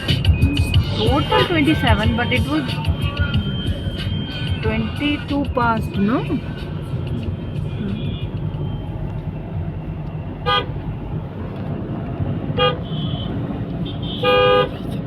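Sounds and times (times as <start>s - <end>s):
vehicle driving rumble: 0.0s - 15.0s
car horn honking: 0.8s - 5.0s, 10.4s - 10.8s, 12.5s - 14.8s.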